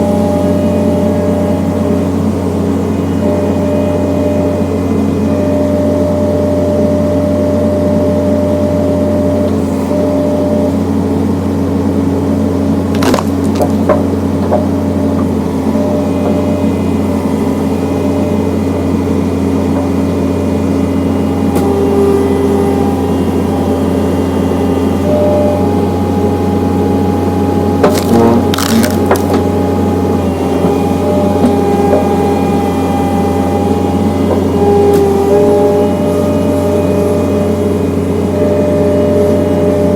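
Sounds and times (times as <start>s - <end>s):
engine running steadily: 0.0s - 39.9s
wood splitting crack: 12.9s - 14.6s, 27.8s - 29.5s.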